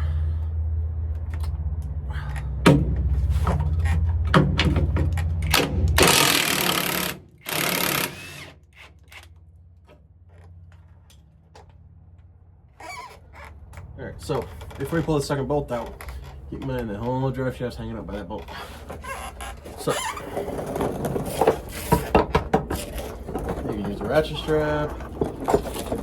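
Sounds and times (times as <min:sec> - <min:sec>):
low hum: 0:00.0 - 0:08.7
impact wrench bursts: 0:05.4 - 0:09.2.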